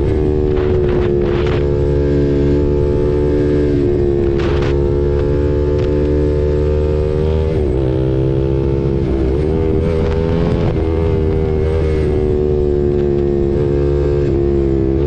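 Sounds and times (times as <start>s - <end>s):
wind buffeting microphone: 0.0s - 6.2s
motorcycle engine running: 0.0s - 15.0s.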